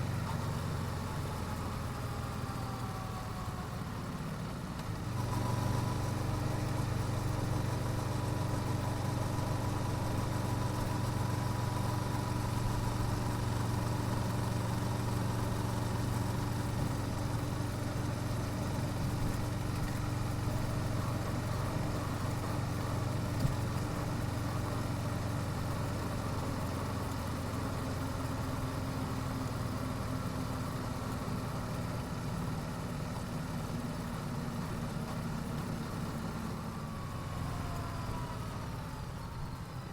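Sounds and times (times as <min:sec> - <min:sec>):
motorcycle engine running steadily: 0:00.0 - 0:39.9.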